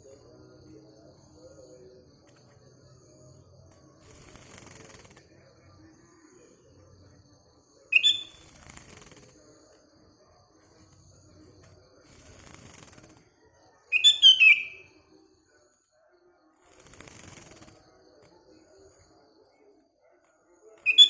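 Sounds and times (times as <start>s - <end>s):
bird calling: 8.0s - 8.4s, 13.9s - 14.9s.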